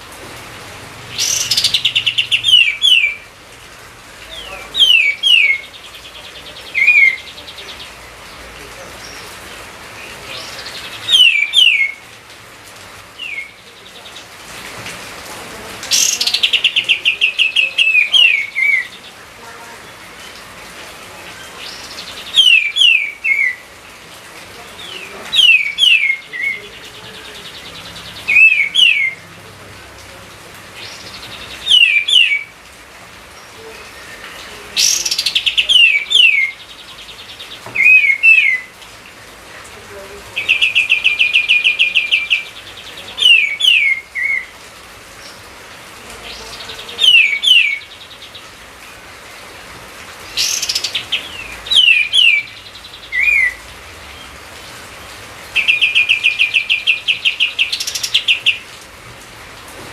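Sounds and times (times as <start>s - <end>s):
bird trill: 1.1s - 3.2s, 10.4s - 12.0s
songbird whistling phrases: 1.2s - 3.2s, 4.4s - 5.8s, 6.6s - 7.9s, 10.4s - 12.0s, 13.2s - 13.6s, 15.9s - 19.0s, 21.7s - 23.6s, 24.9s - 26.6s, 28.3s - 29.2s, 31.3s - 32.5s, 33.8s - 36.6s, 37.8s - 38.7s, 40.4s - 44.5s, 46.9s - 47.9s, 50.4s - 53.6s.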